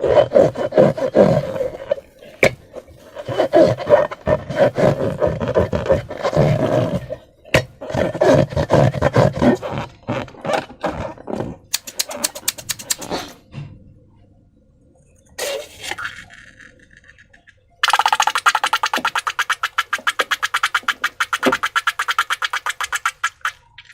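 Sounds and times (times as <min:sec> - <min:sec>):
balloons squeaking with slime: 0:00.0 - 0:13.4, 0:17.8 - 0:23.9.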